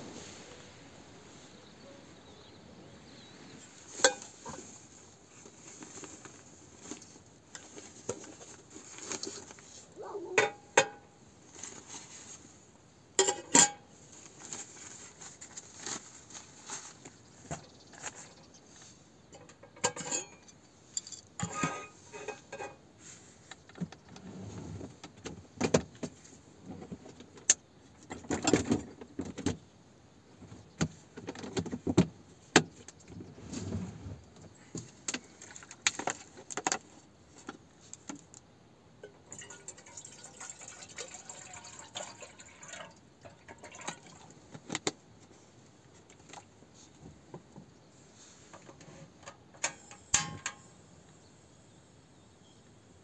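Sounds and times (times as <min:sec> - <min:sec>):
clatter and rustling: 0:03.6 - 0:12.6, 0:13.2 - 0:29.6, 0:30.3 - 0:38.4.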